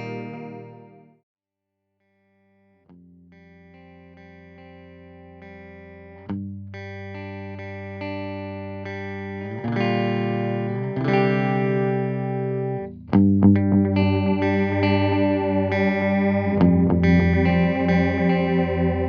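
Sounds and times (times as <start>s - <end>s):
electric guitar chords with delay: 0.0s - 1.2s, 3.4s - 19.0s.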